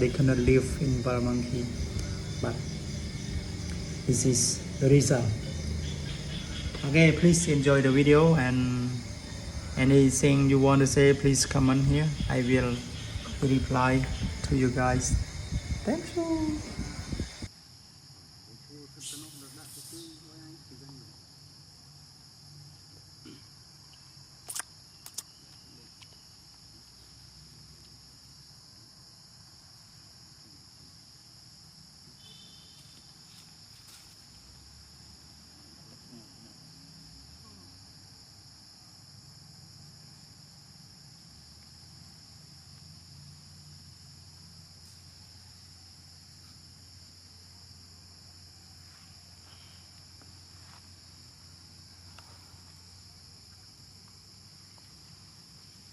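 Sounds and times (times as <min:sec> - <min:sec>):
insects droning: 0:00.0 - 0:55.9
sharp clicks: 0:24.5 - 0:25.3.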